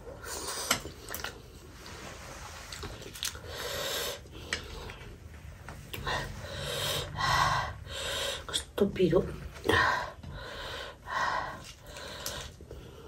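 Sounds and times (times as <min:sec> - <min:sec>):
hard breathing: 0:03.3 - 0:08.5, 0:09.6 - 0:13.0.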